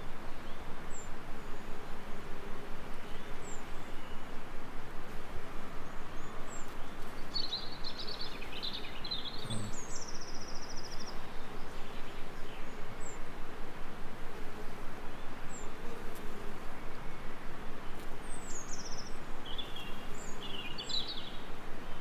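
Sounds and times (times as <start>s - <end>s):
songbirds calling: 5.8s - 13.5s, 14.2s - 22.0s.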